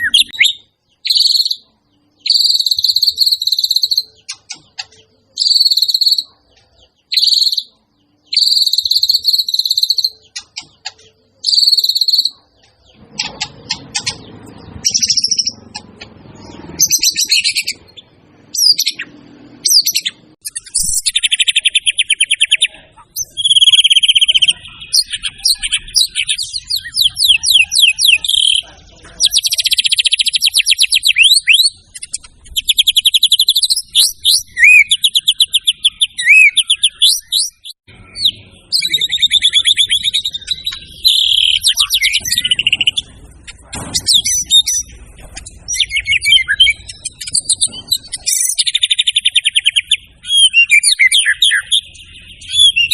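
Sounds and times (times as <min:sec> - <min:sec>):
bird singing trills: 0:00.0 - 0:52.9.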